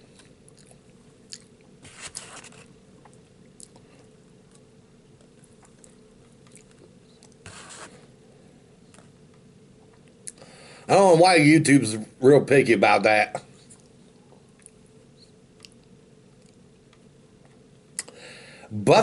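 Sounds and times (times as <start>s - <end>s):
faint hum: 0.0s - 19.0s
person chewing food: 0.1s - 1.8s, 2.4s - 7.4s, 13.7s - 14.9s, 15.6s - 18.1s.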